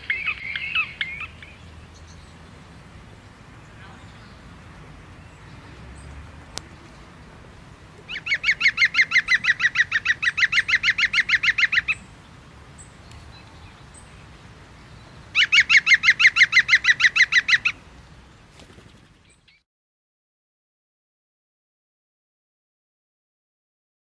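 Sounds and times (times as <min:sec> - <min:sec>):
bird calling rapid repeated notes: 0:00.0 - 0:01.6, 0:08.1 - 0:12.0, 0:15.3 - 0:17.8.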